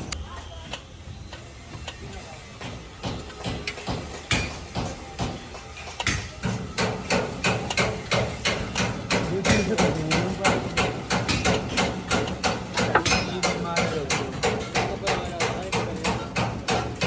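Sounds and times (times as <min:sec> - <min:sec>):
rapid hammering: 0:02.6 - 0:17.0.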